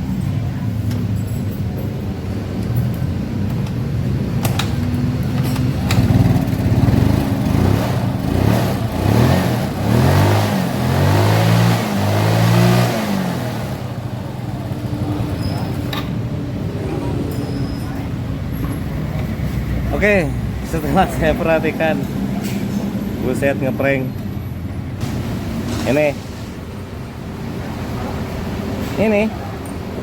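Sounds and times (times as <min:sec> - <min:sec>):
scooter engine revving: 0:04.1 - 0:17.3.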